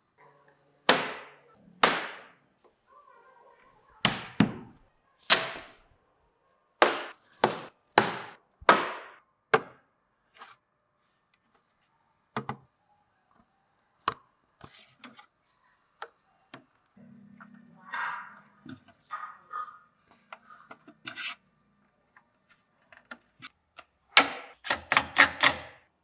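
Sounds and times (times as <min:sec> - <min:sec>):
wood being struck: 0:00.9 - 0:02.3, 0:04.0 - 0:05.8, 0:06.8 - 0:09.8.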